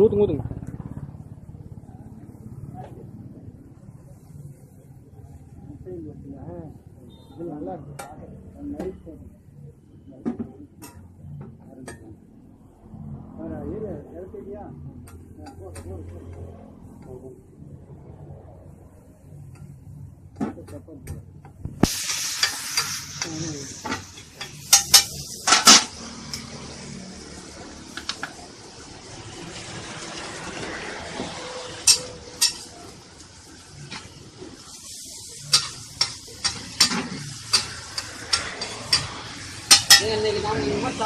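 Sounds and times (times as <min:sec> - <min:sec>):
food sizzling on a griddle: 0:21.7 - 0:41.0
metal spatulas clanking on griddle: 0:21.9 - 0:26.4, 0:31.8 - 0:32.8, 0:35.3 - 0:40.2.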